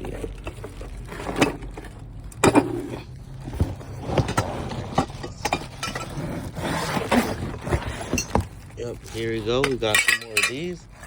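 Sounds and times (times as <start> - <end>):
rustling: 0.0 - 9.9
equipment parts knocking and rattling: 0.0 - 10.9.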